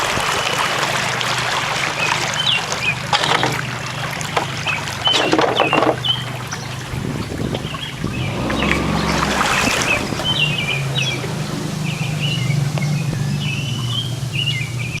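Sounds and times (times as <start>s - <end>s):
boat engine humming: 0.0s - 15.0s
splashing: 0.0s - 15.0s
birds chirping: 0.2s - 15.0s.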